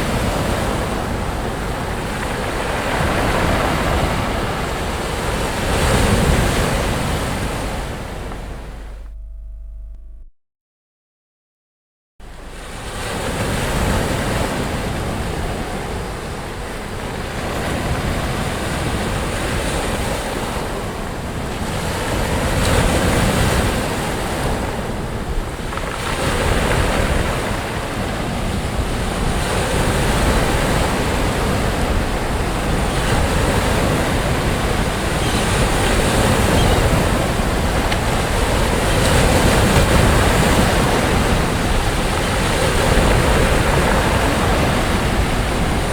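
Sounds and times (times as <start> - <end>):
sea waves breaking on shore: 0.0 - 9.1, 12.2 - 45.9
wind rumbling on microphone: 12.2 - 45.9.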